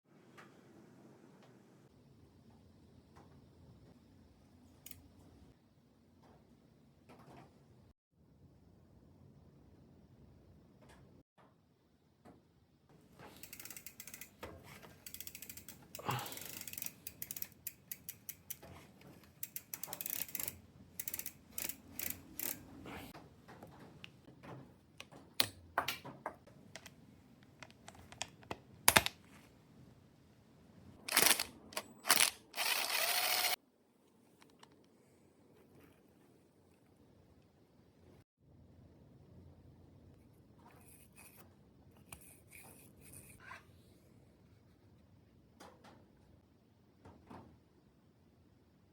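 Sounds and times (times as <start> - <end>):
hand tools clicking and ratcheting: 13.3 - 14.4, 15.0 - 22.7, 31.1 - 33.6.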